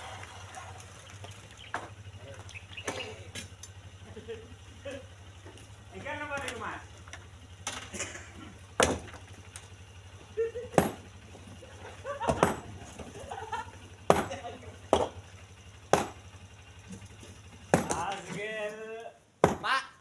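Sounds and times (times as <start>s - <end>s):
stones dropped into truck bed: 0.0s - 3.6s, 6.4s - 9.7s, 10.7s - 13.5s, 14.1s - 15.2s, 16.8s - 18.8s.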